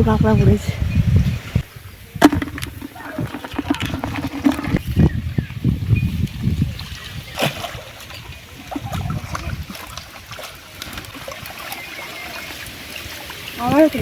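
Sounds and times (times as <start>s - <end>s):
pond water splashing and dripping: 1.2s - 14.0s
sharp knock: 2.2s - 4.5s
low handling thumps: 2.2s - 5.2s.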